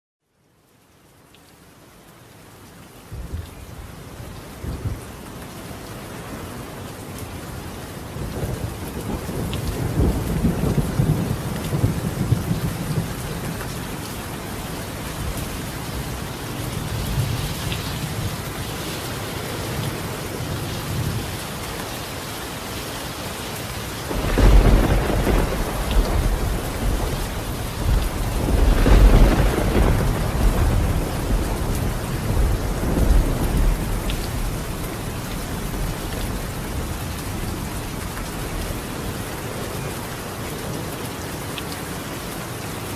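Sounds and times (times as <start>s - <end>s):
heavy rain on a tiled roof: 0.2s - 42.9s
rolling thunder: 8.2s - 13.7s, 24.1s - 38.8s.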